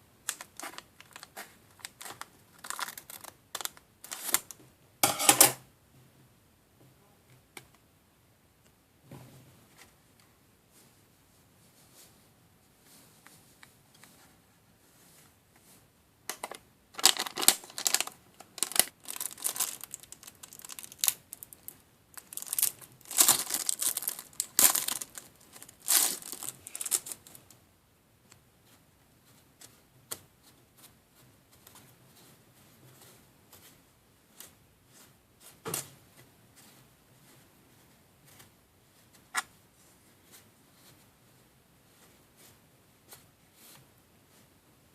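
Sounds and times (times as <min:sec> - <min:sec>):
plastic packaging crinkling and tearing: 0:00.3 - 0:04.6, 0:16.4 - 0:27.4.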